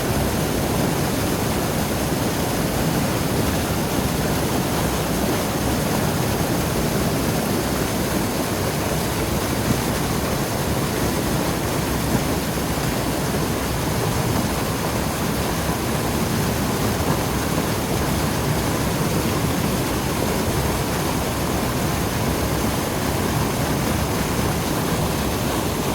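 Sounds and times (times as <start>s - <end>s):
waterfall roaring: 0.0s - 25.9s.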